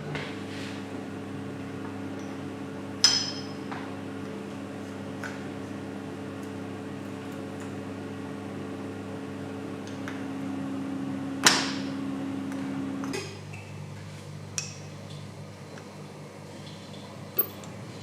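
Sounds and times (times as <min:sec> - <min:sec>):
electric machine hum: 0:08.1 - 0:16.4
sharp metallic clink: 0:17.4 - 0:17.7.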